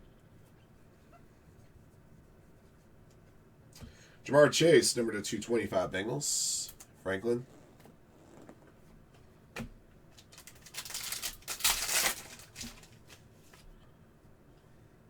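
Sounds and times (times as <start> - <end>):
foil wrapper tearing and rustling: 10.2 - 13.2.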